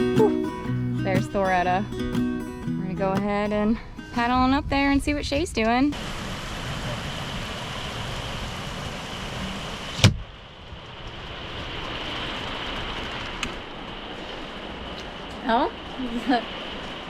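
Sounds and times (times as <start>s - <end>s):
steady rushing noise: 5.9s - 17.0s.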